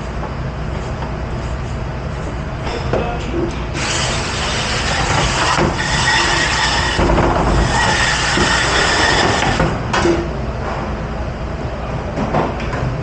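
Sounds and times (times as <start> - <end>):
dish machine running: 2.7 - 10.3.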